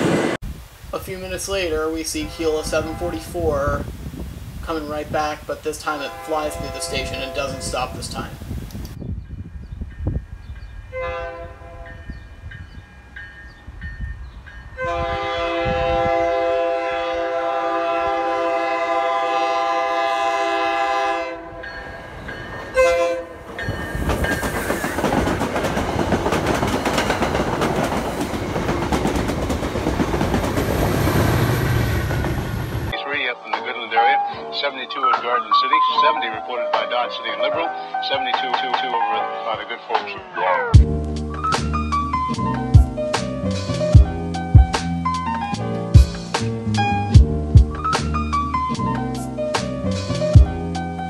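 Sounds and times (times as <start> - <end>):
train rumble: 0.0 - 0.4, 1.5 - 33.0
locomotive air horn: 2.2 - 3.4, 6.0 - 8.0, 11.0 - 12.0, 14.8 - 21.6, 22.7 - 23.4
wheel clatter on rails: 23.4 - 31.0.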